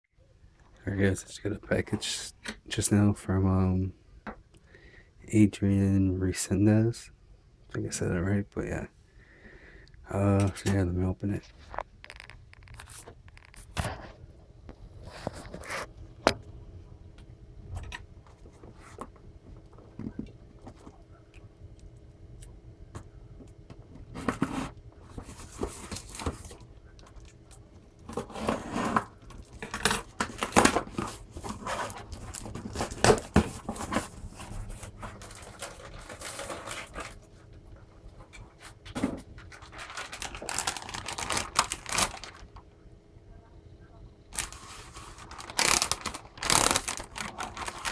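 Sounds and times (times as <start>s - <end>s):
package being opened by hand: 11.7s - 14.0s, 24.2s - 37.2s, 38.2s - 42.6s, 44.3s - 47.9s.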